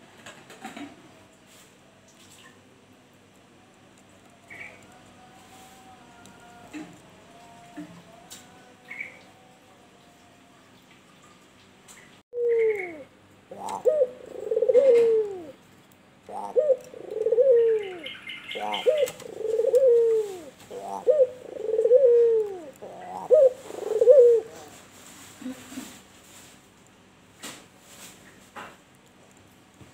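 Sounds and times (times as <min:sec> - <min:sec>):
dove cooing: 0:12.4 - 0:15.6, 0:16.2 - 0:24.8.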